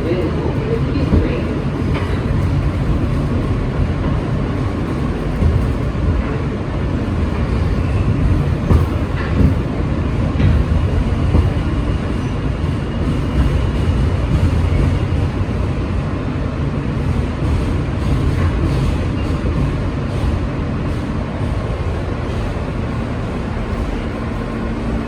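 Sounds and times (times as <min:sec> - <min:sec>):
subway train rumbling: 0:00.0 - 0:25.0.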